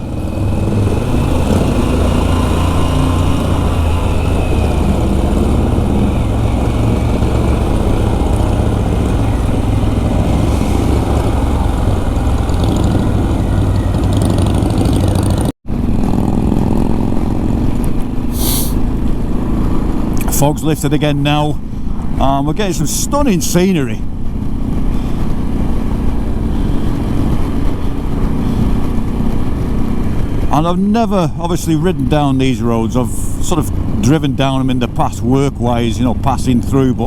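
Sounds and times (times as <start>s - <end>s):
wind rush: 0.0s - 15.9s, 24.0s - 37.0s
motorcycle engine rumble: 0.0s - 37.0s.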